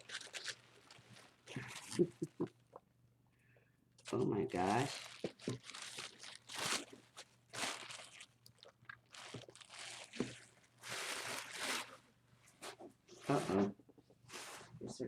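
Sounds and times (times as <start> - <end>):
packaging crinkling and rustling: 0.0 - 2.4, 4.0 - 12.0.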